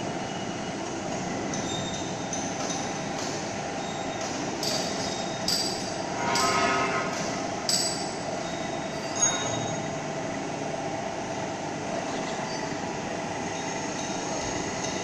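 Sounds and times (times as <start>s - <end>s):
shop machinery running: 0.0s - 15.0s.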